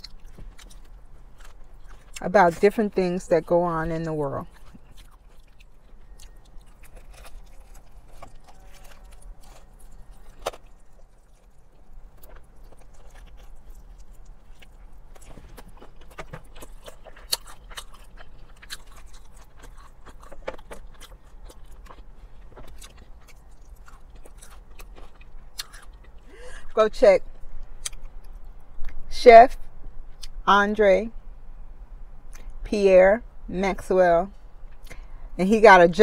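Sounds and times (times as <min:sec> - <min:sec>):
chewing crispy fried chicken: 0:00.0 - 0:29.0
steady low hum: 0:00.0 - 0:36.0.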